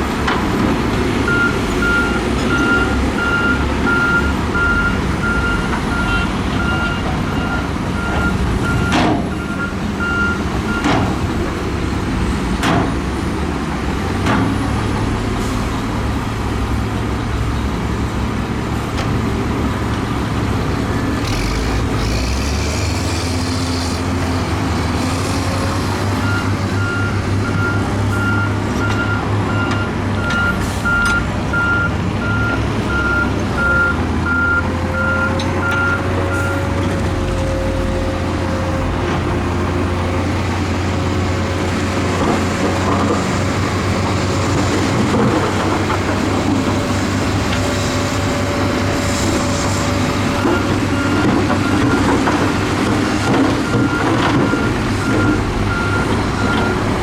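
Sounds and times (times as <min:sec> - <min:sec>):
heavy diesel machinery running: 0:00.0 - 0:57.0
reversing alarm beeping: 0:01.3 - 0:10.9, 0:26.2 - 0:36.7, 0:50.4 - 0:52.2, 0:53.5 - 0:56.9.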